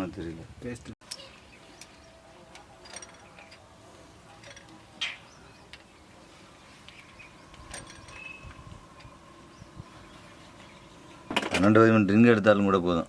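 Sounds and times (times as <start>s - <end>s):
metal tools clinking: 2.5s - 3.7s, 4.3s - 5.9s, 7.5s - 9.1s
metal parts clattering: 2.8s - 3.6s, 4.4s - 4.8s, 7.6s - 8.3s.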